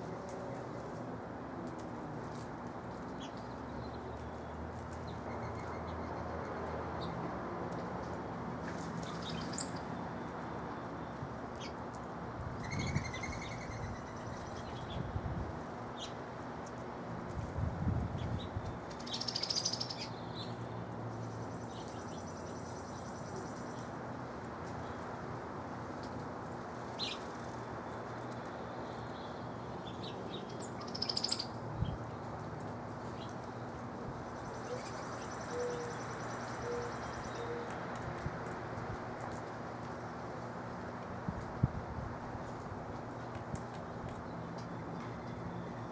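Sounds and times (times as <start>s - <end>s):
songbirds chirping: 0.0s - 41.5s, 42.2s - 45.9s
small birds chirping: 9.0s - 11.8s, 18.1s - 23.9s, 26.9s - 32.3s.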